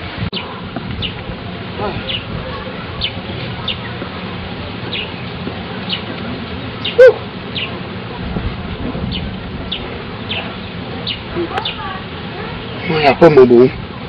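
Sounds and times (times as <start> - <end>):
loud bird call: 6.8 - 7.8.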